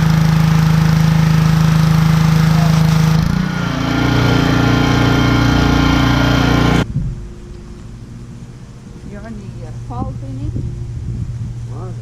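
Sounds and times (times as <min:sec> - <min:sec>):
small gasoline engine running: 0:00.0 - 0:06.8.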